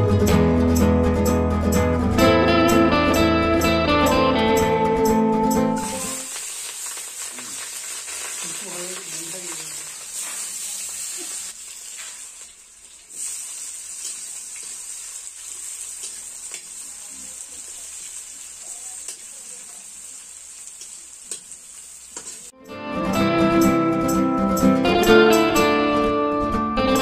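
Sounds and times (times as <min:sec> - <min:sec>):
guitar music: 0:00.0 - 0:06.3, 0:22.6 - 0:27.0
onions sizzling in hot oil: 0:05.8 - 0:22.6.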